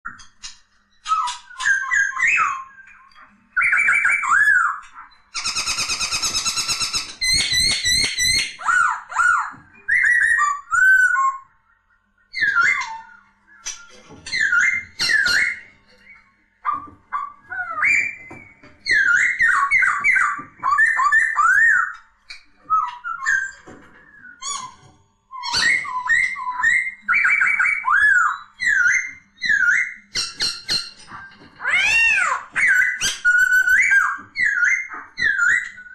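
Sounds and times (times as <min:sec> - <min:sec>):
bird singing whistled phrases: 0:01.0 - 0:35.9
harsh rattling bird chatter: 0:03.6 - 0:09.4, 0:12.4 - 0:16.2.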